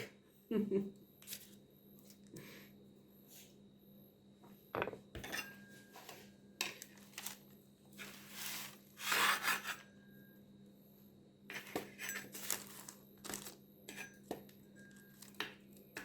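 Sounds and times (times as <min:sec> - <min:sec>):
utensils scraping dishes: 0:05.2 - 0:06.8, 0:08.3 - 0:09.9, 0:11.5 - 0:12.6.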